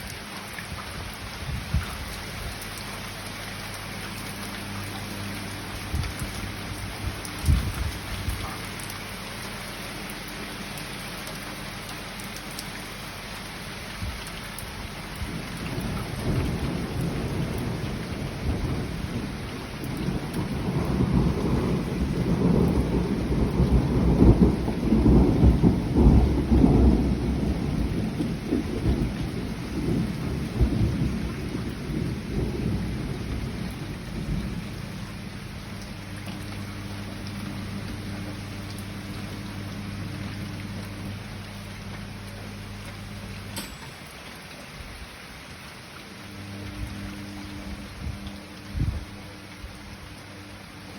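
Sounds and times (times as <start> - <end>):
steady rain falling: 0.0 - 50.9
thunder rumbling: 15.2 - 38.4.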